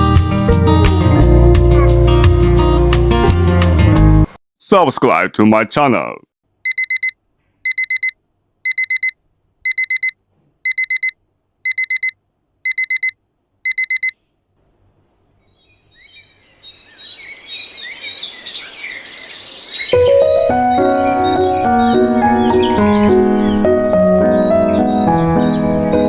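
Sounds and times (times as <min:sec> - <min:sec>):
alarm clock beeping: 0:06.7 - 0:14.1
birds chirping: 0:15.2 - 0:26.0
piano music: 0:20.0 - 0:26.0.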